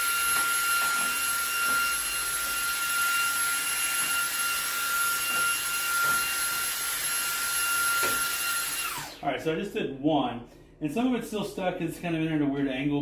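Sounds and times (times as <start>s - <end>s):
handheld vacuum motor whine: 0.0s - 9.3s.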